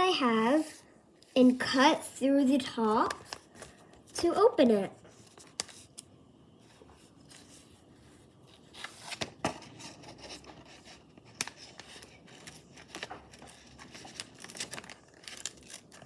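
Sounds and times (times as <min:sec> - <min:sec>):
plastic bag crinkling: 0:11.5 - 0:16.0.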